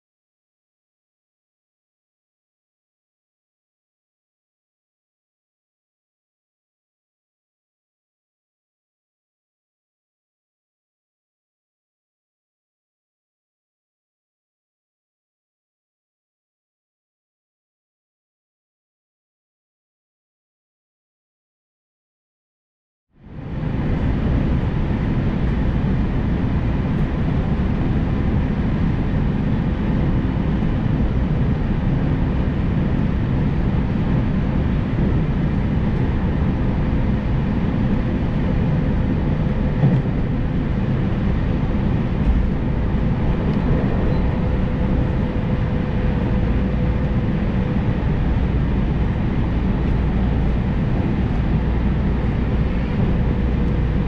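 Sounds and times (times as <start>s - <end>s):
faint hum: 23.2s - 54.0s
train wheels rumbling on rails: 23.3s - 54.0s.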